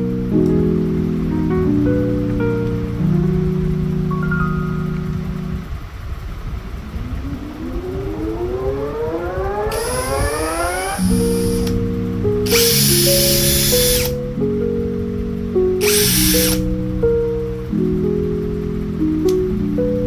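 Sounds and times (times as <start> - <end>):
background music with sustained notes: 0.0 - 20.0
electric drill motor whining: 9.7 - 11.7, 12.5 - 14.2, 15.8 - 16.6.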